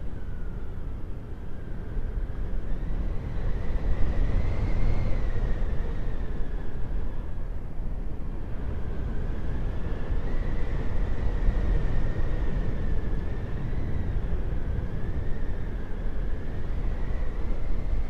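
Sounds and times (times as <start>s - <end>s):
howling wind: 0.0s - 18.0s
thin wind whistling: 0.0s - 18.0s.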